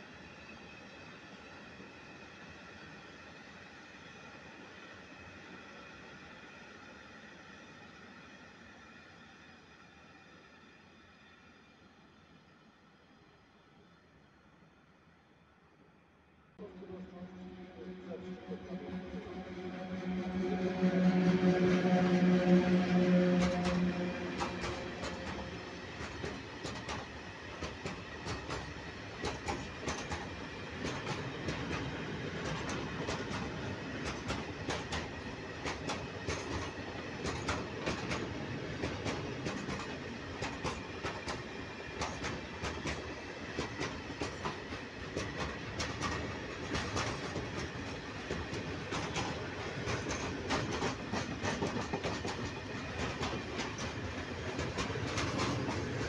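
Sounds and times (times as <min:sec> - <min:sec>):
freight train rumbling past: 0:16.6 - 0:56.0.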